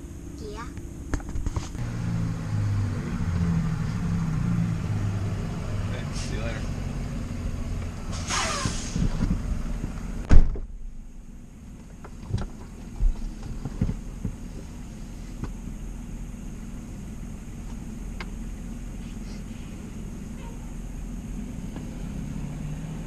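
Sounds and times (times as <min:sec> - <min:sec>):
car engine idling: 0:00.0 - 0:08.1, 0:09.1 - 0:23.0
car door slam: 0:10.2 - 0:10.9.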